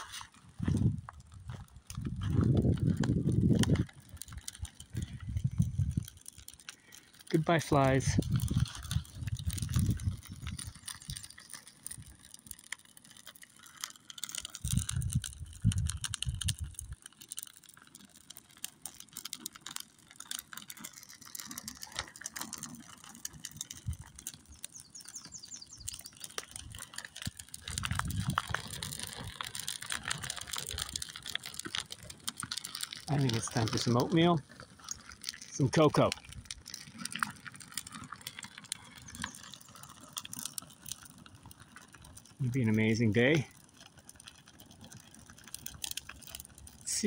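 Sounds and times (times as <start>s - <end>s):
low rumbles: 0.0s - 12.0s, 14.6s - 17.0s, 23.8s - 36.8s
fire crackling and popping: 0.0s - 47.0s.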